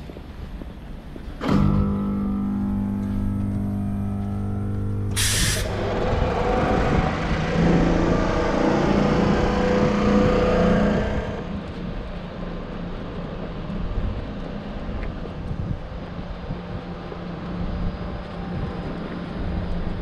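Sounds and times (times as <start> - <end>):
train running rumble: 0.0 - 20.0
air brake hiss: 5.2 - 5.7.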